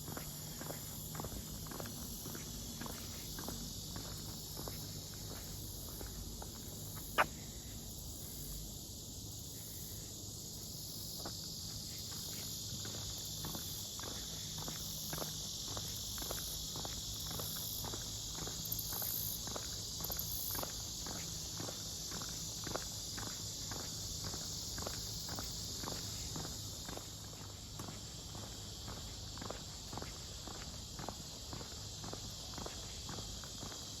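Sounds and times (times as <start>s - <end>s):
footsteps walking: 0.0s - 7.3s
high-pitched insect chorus: 0.0s - 34.0s.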